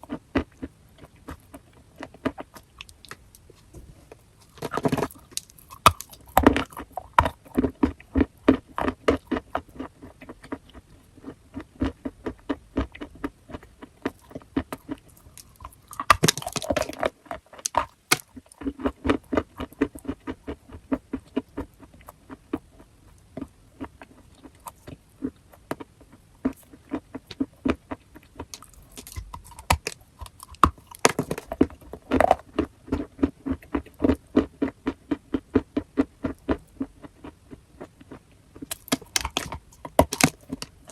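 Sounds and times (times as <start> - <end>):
chewing chalk crunches: 0.0 - 40.9.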